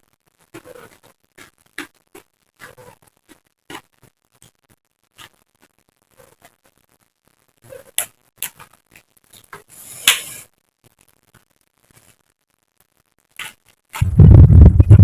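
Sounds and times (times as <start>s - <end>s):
muffled low rumble: 14.0s - 15.0s.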